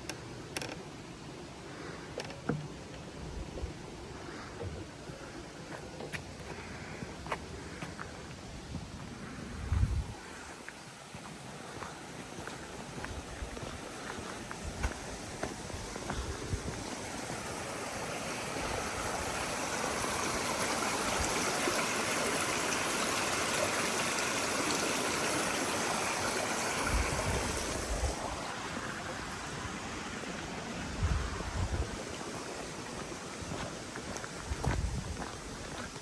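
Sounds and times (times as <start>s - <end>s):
soft low thumps: 8.7s - 10.2s, 33.5s - 35.9s
stream water rushing: 10.1s - 36.0s.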